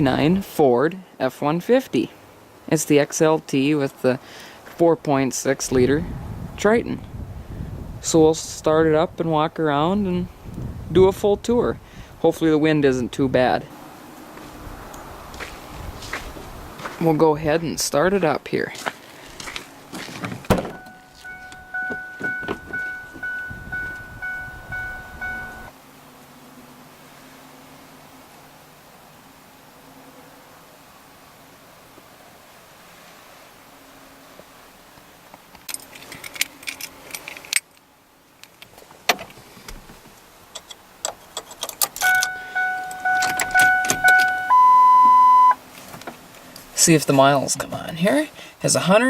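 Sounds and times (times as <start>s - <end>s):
thunk: 20.5s - 20.8s
truck warning chime dinging: 20.6s - 25.7s, 42.0s - 45.6s
key clicking into ignition: 41.4s - 44.5s.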